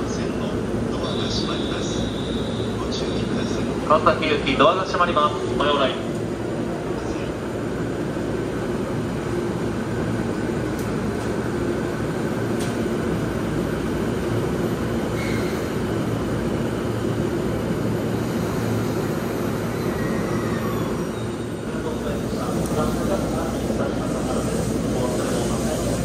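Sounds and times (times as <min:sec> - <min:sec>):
idling train hum and rumble: 0:00.0 - 0:26.0
train doors closing: 0:10.0 - 0:16.8, 0:18.1 - 0:26.0.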